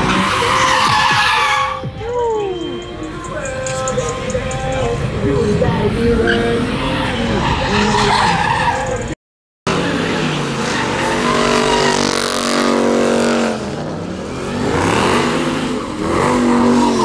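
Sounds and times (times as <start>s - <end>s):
tires skidding: 0.0s - 1.9s, 6.0s - 17.0s
car engine revving hard: 9.7s - 17.0s.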